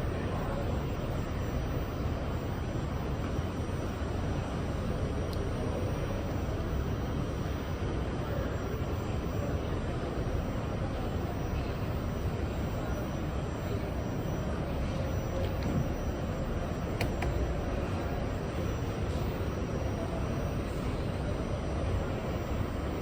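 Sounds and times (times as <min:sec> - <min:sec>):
faint hum: 0:00.0 - 0:23.0
short clicks: 0:16.9 - 0:17.6.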